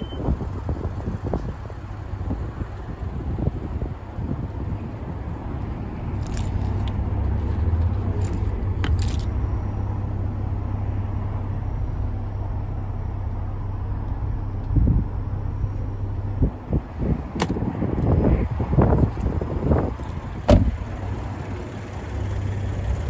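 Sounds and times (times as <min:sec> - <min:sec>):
car engine idling: 0:00.0 - 0:23.0
low thump: 0:20.4 - 0:20.8.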